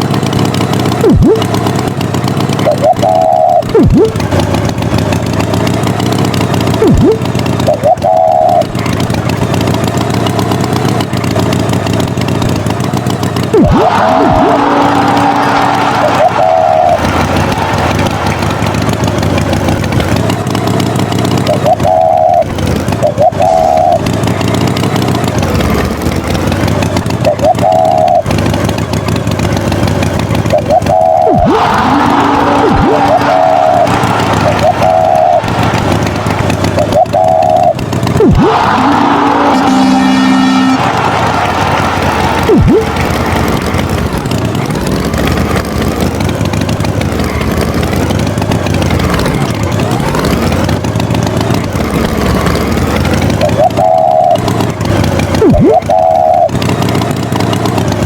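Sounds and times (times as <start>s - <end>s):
tractor engine running: 0.0s - 58.0s
wavering high tone: 1.0s - 1.8s, 2.5s - 4.3s, 6.8s - 9.0s, 13.5s - 25.1s, 27.2s - 28.3s, 30.5s - 41.5s, 42.4s - 44.4s, 53.3s - 56.9s
rising chirps: 2.6s - 4.1s, 6.8s - 8.7s, 13.5s - 19.0s, 21.5s - 24.0s, 30.5s - 43.6s, 53.4s - 54.5s, 55.4s - 56.5s.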